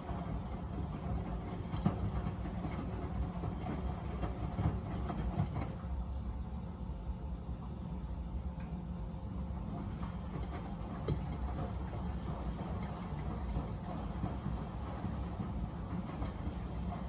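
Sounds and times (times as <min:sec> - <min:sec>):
washing machine drum rumbling: 0:00.0 - 0:17.0.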